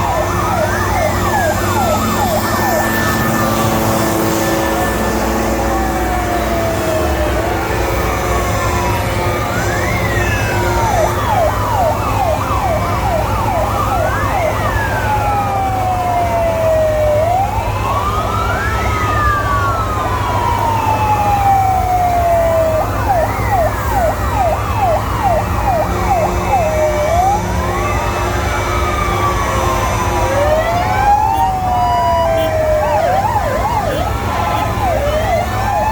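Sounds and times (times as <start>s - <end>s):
siren wailing: 0.0s - 35.9s
siren yelping: 0.0s - 35.9s.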